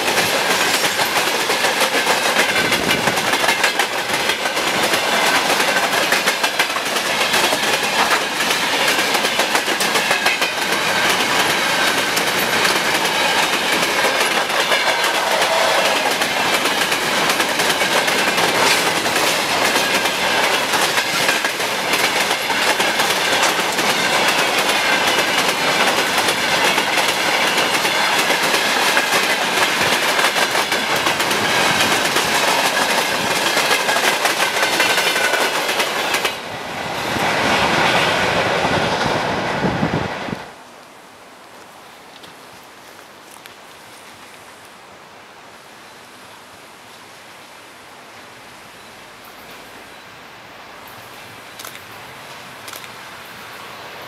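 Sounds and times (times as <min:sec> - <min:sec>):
train wheels clickety-clack: 0:00.0 - 0:39.7.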